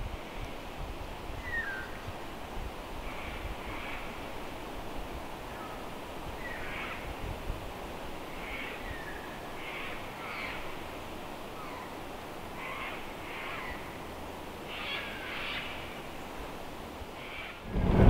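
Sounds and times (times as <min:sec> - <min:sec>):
faint low background hiss: 0:00.0 - 0:18.0
forest birds calling: 0:01.4 - 0:02.1, 0:05.4 - 0:07.2, 0:08.2 - 0:17.6.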